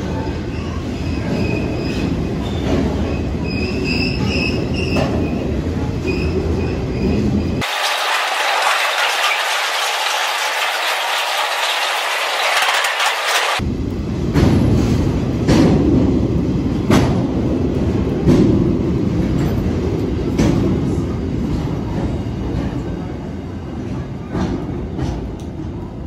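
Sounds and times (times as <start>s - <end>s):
wheels clacking over rails: 7.6s - 13.6s.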